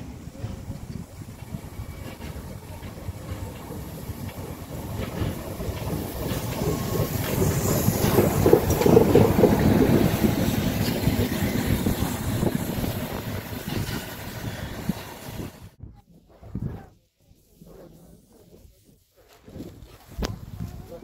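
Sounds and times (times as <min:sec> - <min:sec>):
steam locomotive passing: 0:00.0 - 0:15.8.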